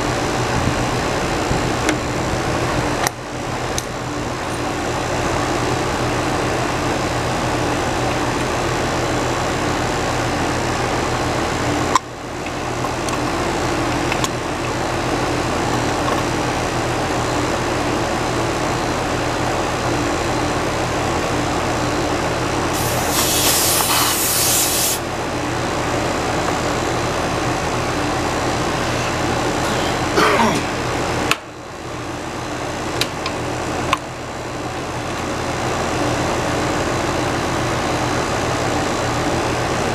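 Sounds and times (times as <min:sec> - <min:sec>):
air conditioning hum: 0:00.0 - 0:39.9
short hiss: 0:22.8 - 0:25.0.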